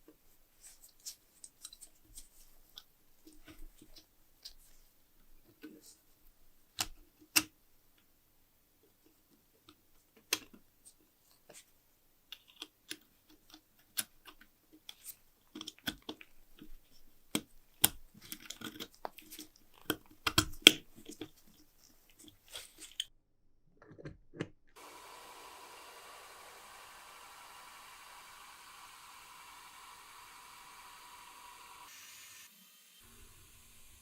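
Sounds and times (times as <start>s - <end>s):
steady faint hiss: 0.0s - 12.3s.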